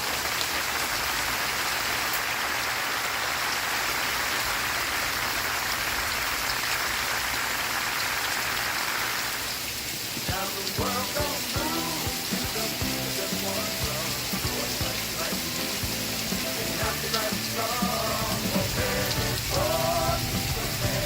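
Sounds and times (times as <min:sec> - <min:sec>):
steady rain falling: 0:00.0 - 0:21.0
music with pitched notes: 0:10.8 - 0:21.0.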